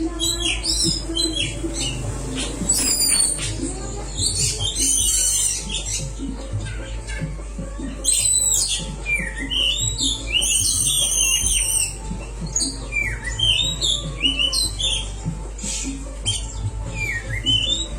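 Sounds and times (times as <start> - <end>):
bird song whistles and chatter: 0.0 - 17.9.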